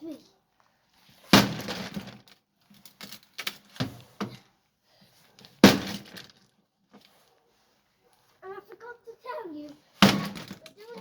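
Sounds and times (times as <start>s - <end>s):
broken parts rattling: 10.0s - 11.0s.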